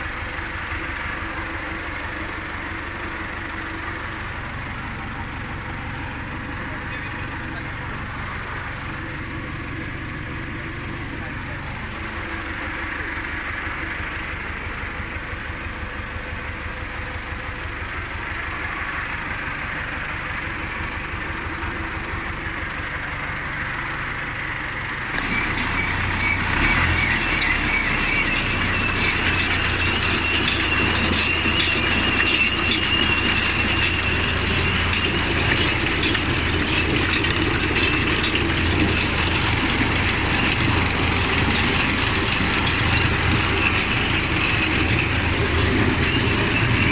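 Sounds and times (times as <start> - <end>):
tractor engine rumble: 0.0 - 46.9
fast metallic clatter: 25.1 - 46.9.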